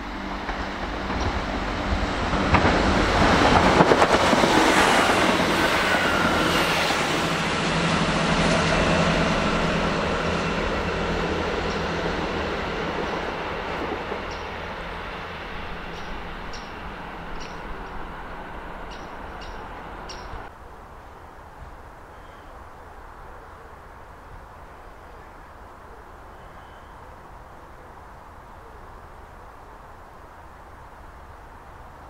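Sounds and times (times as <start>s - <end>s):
diesel train passing: 0.0s - 21.3s
wheels on rails: 8.4s - 20.5s.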